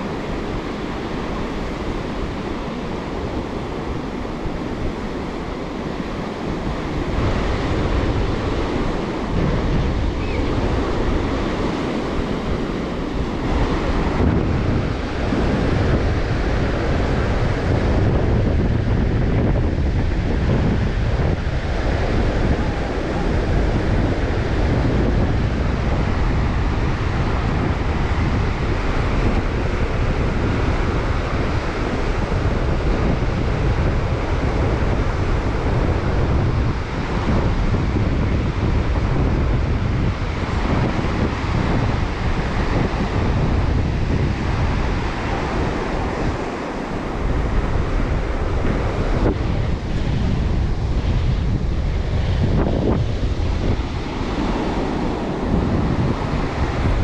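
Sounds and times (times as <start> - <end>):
surf breaking on shore: 0.0 - 57.0
wind buffeting microphone: 0.0 - 57.0.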